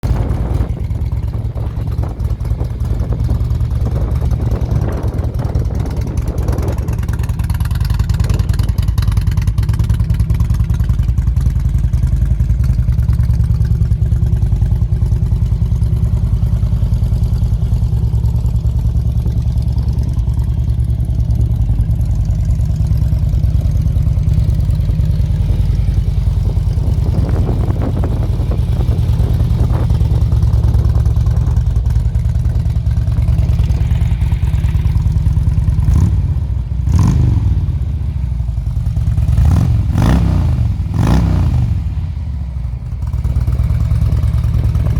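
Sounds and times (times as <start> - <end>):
motorcycle exhaust note: 12.5 - 44.9.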